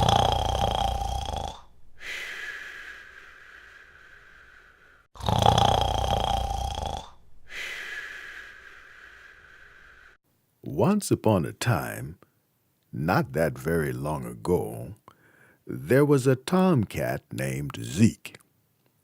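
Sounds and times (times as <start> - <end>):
cartoon snoring: 0.0 - 2.3, 5.1 - 7.8.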